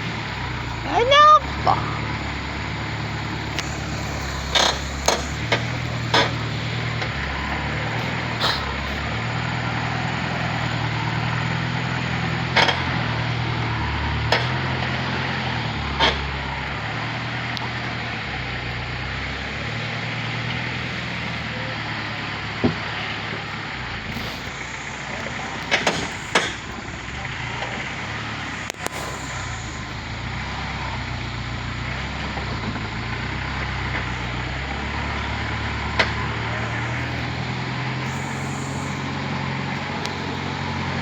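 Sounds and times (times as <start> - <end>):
truck engine droning: 0.0 - 41.0
knocks and clanks: 3.5 - 8.8, 24.1 - 29.4.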